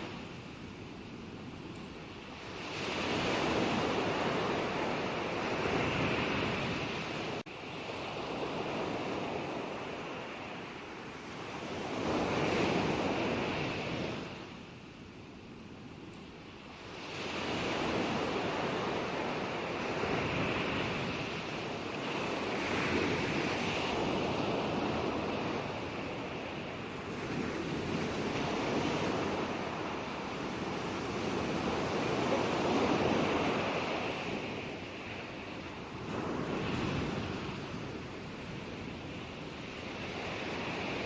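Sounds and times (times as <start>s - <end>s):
ocean waves breaking on shore: 0.0s - 15.1s, 16.3s - 41.0s.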